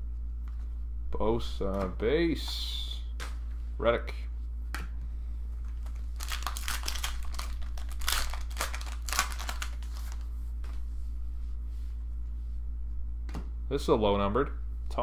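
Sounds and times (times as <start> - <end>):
steady low hum: 0.0 - 15.0
foil wrapper crinkling and tearing: 5.8 - 10.3.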